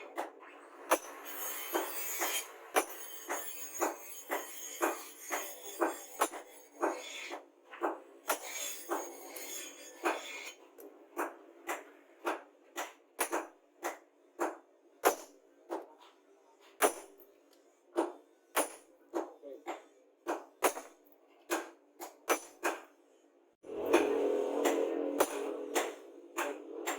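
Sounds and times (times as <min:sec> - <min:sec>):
hand tools striking steel blade: 0:00.9 - 0:07.3, 0:23.8 - 0:26.9.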